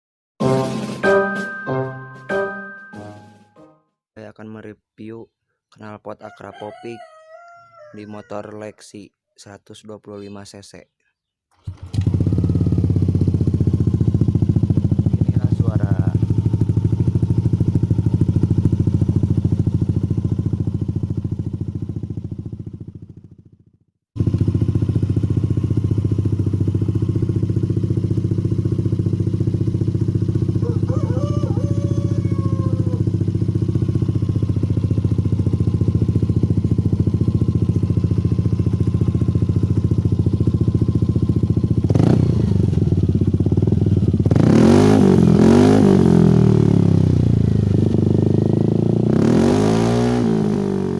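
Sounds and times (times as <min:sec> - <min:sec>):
scooter engine idling: 0:11.6 - 0:44.4, 0:46.0 - 0:49.0
scooter throttle blip: 0:24.3 - 0:24.6.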